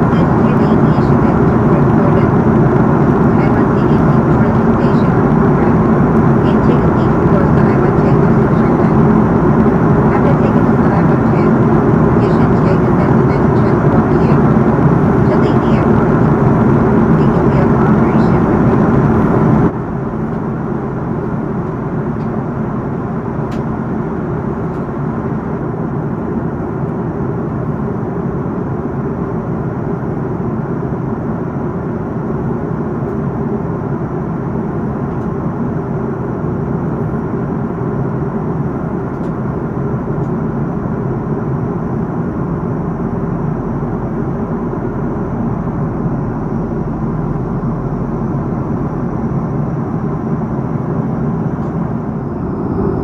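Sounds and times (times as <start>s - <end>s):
airliner cabin engine noise: 0.0s - 53.0s.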